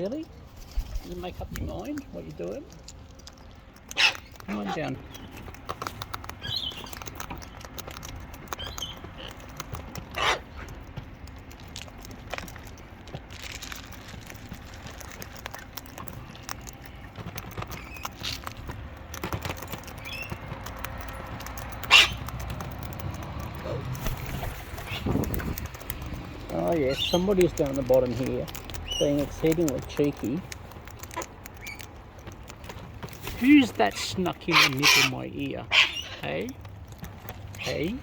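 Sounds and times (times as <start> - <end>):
birds cracking seed: 0.0 - 38.0
sharp bird calls: 3.9 - 5.6, 6.4 - 7.7, 8.5 - 9.3, 21.8 - 22.4, 26.3 - 27.5, 33.8 - 36.3.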